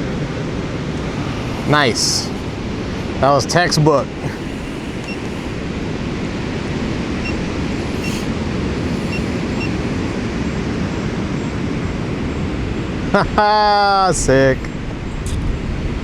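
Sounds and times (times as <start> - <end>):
faint high beeps: 0.8 - 2.6, 4.2 - 5.6.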